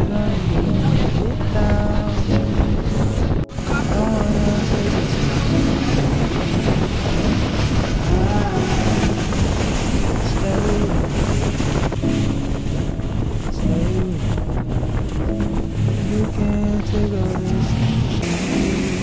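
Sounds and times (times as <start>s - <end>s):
speedboat engine running: 0.0s - 19.0s
water rushing past hull: 0.0s - 19.0s
wind buffeting microphone: 0.0s - 19.0s.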